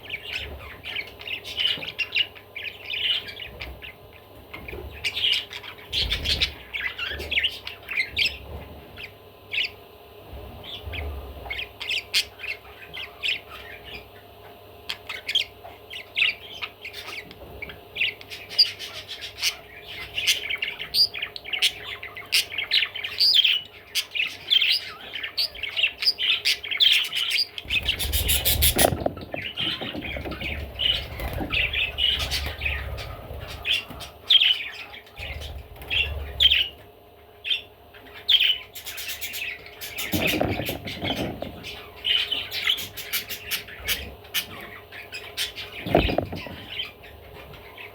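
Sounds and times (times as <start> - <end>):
budgerigar chattering: 18.0 - 35.4.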